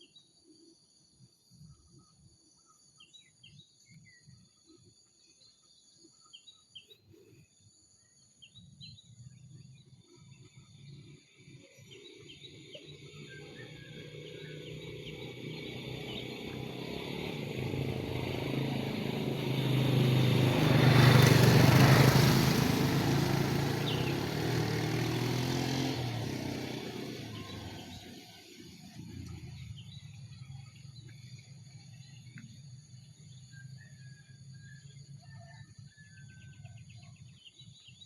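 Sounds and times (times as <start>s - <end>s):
vehicle driving past: 12.0s - 33.4s.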